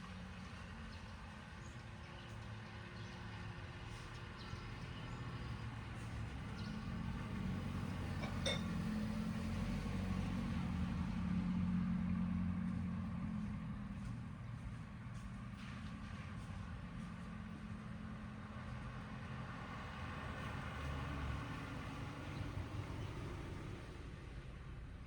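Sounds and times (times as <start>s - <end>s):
engine humming: 6.2s - 11.2s.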